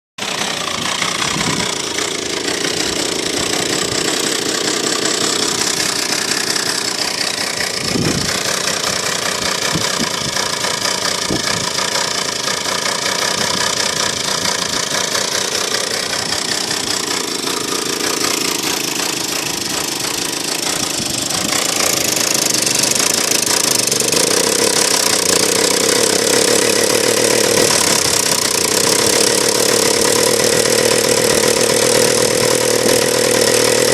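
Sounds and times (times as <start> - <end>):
chainsaw engine running: 0.2 - 33.9.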